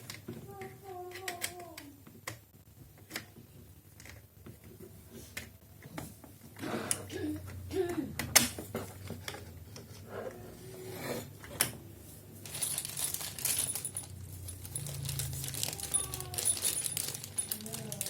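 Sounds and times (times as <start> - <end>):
rustling: 12.0 - 18.0
hard parts clicking and clattering: 12.4 - 18.0.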